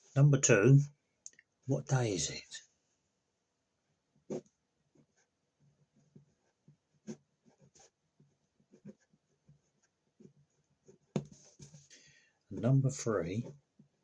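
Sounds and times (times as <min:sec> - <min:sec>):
pen scratching on paper: 0:04.3 - 0:11.9.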